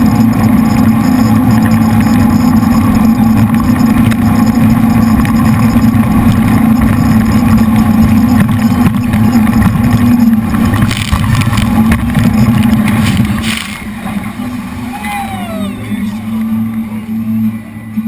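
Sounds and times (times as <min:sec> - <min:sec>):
boat engines droning: 0:00.0 - 0:18.0.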